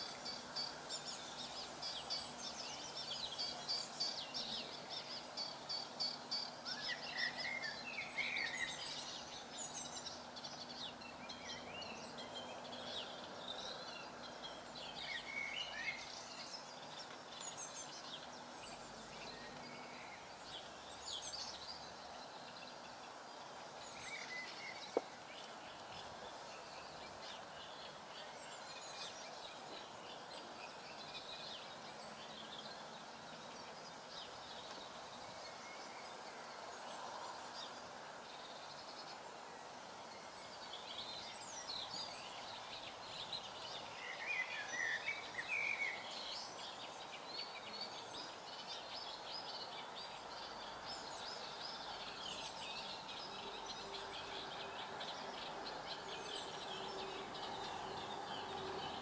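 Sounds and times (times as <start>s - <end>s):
outdoor background hiss: 0.0s - 59.0s
songbirds chirping and singing: 0.0s - 59.0s.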